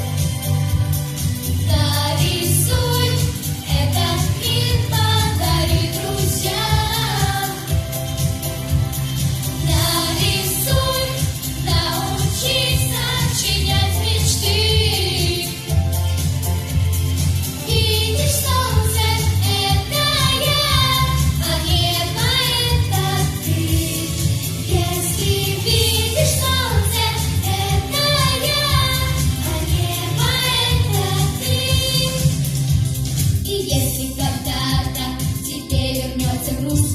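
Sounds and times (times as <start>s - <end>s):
instrumental backing track: 0.0s - 36.9s
children singing: 2.0s - 7.7s, 9.7s - 15.7s, 17.7s - 32.4s.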